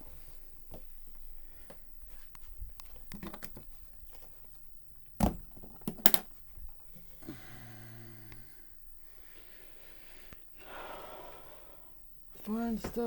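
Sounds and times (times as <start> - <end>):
piano parts clicking and knocking: 2.3 - 7.2.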